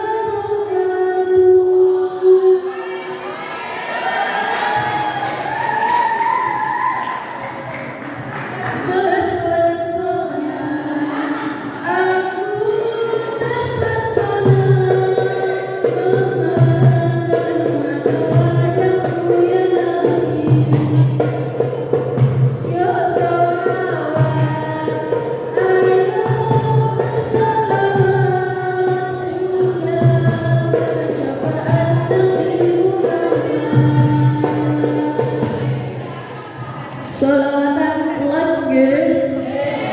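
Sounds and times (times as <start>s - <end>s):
person singing devotional song: 8.7s - 38.2s.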